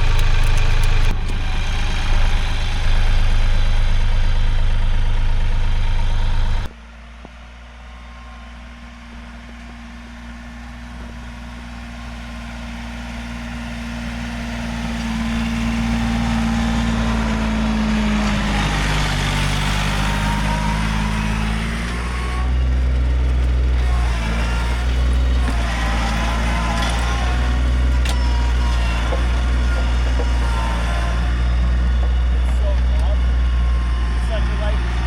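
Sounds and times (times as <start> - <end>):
heavy low rumble: 0.0 - 6.7
vehicle engine approaching: 0.0 - 35.0.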